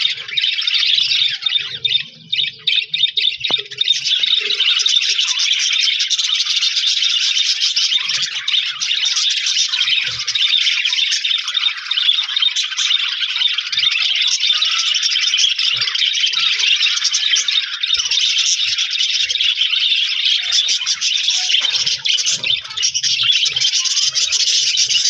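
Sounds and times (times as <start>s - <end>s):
budgerigars chirping: 0.0s - 25.0s.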